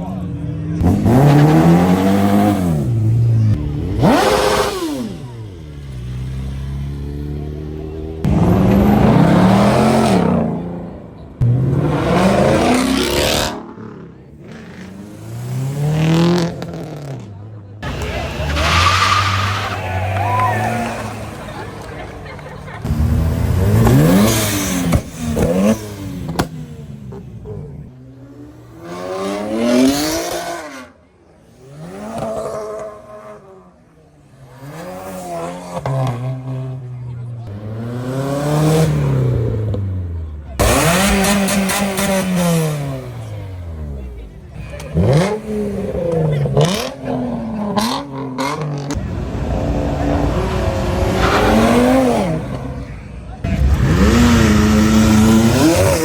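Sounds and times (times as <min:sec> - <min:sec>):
car engine revving: 0:00.1 - 0:56.0.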